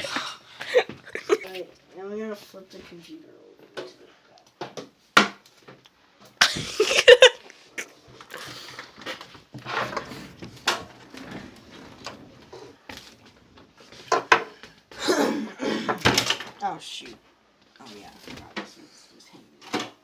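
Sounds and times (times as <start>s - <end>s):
rustling: 7.4s - 14.9s
computer case knocking and scraping: 8.9s - 14.6s.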